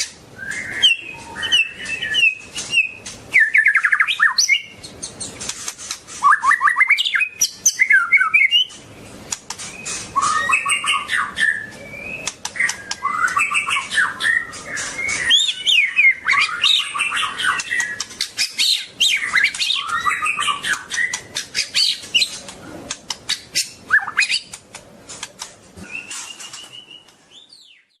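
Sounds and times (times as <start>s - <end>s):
bird singing whistled phrases: 0.4s - 4.8s, 6.2s - 8.7s, 9.7s - 22.0s, 23.6s - 24.5s.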